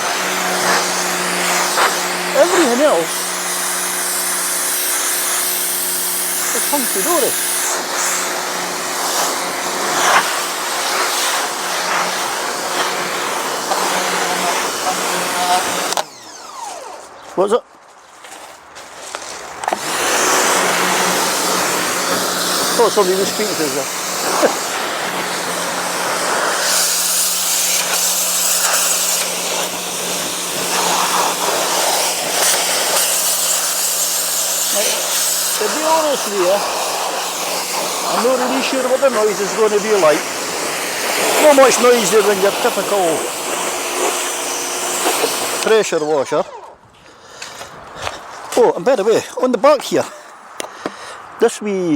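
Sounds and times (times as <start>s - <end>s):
water jet hissing: 0.0s - 16.3s, 19.6s - 46.4s
pressure washer motor hum: 0.0s - 17.3s, 19.6s - 46.8s.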